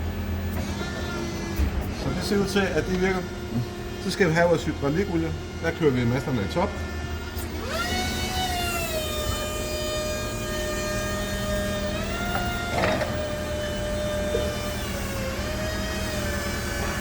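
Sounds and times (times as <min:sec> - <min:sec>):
hydraulic pump motor whining: 0:00.0 - 0:17.0.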